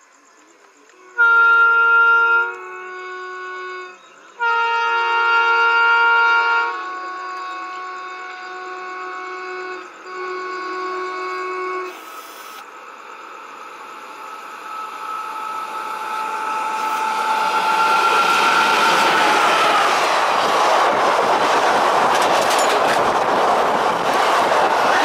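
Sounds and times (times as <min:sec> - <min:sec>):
train approaching on rails: 0:00.0 - 0:25.0
locomotive air horn blasts: 0:00.9 - 0:12.2, 0:14.9 - 0:20.0
steady high tone: 0:09.8 - 0:20.7.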